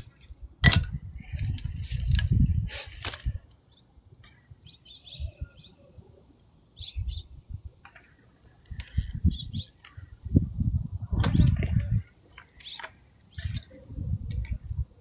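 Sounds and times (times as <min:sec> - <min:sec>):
birds chirping: 0:03.6 - 0:10.3, 0:11.3 - 0:14.0.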